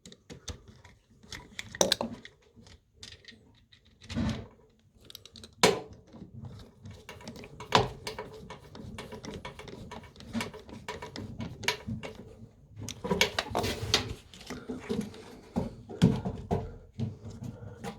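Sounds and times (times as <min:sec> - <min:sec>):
tools clicking and knocking: 0:06.9 - 0:14.0.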